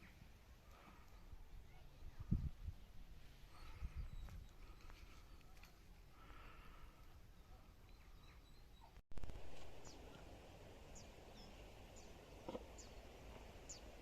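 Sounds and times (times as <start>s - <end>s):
small bird chirping: 10.9s - 14.0s.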